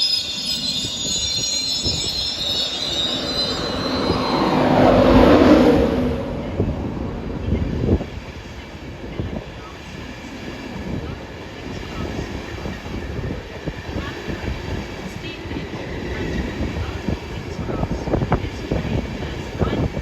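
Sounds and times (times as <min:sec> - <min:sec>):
metallic squeal of train wheels: 0:00.0 - 0:06.2
train rushing past: 0:00.0 - 0:20.0.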